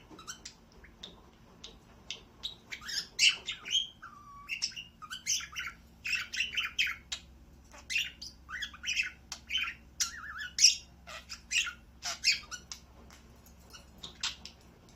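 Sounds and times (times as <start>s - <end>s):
budgerigar chattering: 0.1s - 12.8s.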